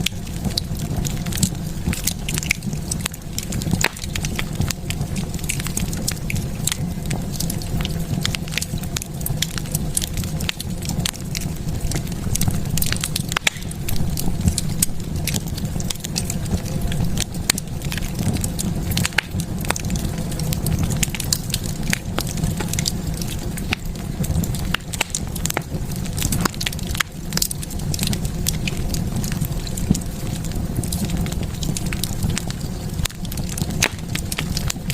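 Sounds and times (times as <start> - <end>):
low rumble of flames: 0.0 - 34.9
wood fire crackling and popping: 0.0 - 34.9.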